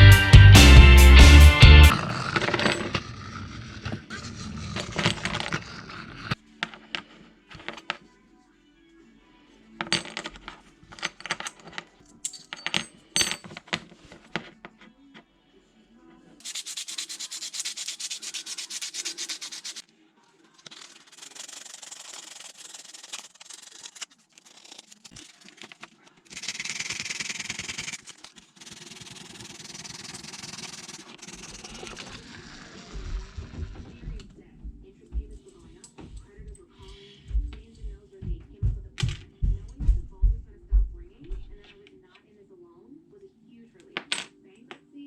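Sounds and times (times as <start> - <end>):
rubbing or scraping noise: 1.8 - 8.0, 16.4 - 19.8, 20.5 - 34.2.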